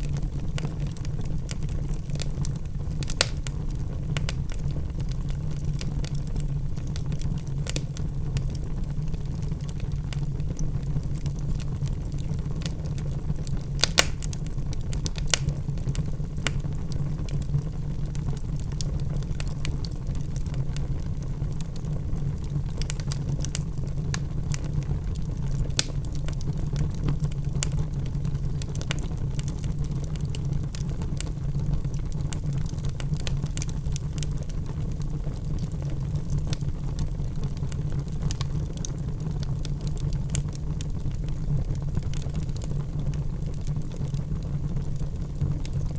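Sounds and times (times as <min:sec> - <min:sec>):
logs crackling and popping: 0:00.0 - 0:45.9
low rumble of fire: 0:00.0 - 0:45.9.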